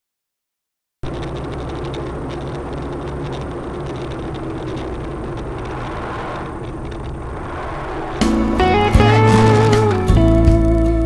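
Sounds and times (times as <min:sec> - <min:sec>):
car engine and road noise: 0:01.0 - 0:11.0.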